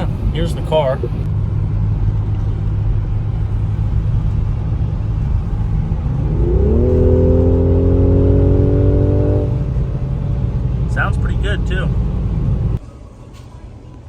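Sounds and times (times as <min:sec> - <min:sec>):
car engine accelerating: 0:00.0 - 0:12.8
road rumble: 0:00.0 - 0:14.0.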